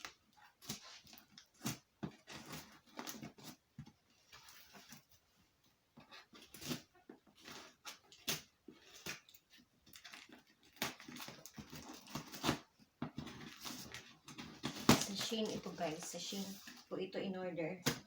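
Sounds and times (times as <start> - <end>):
plastic mailer crinkling and tearing: 6.3 - 16.9.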